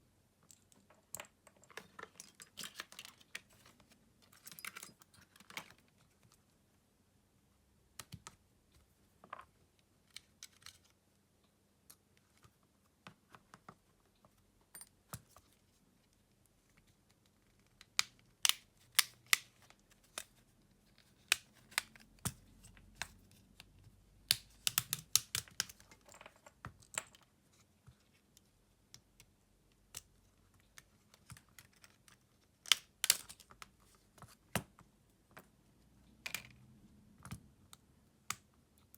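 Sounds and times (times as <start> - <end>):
small tools clicking and tapping: 21.2 - 27.3.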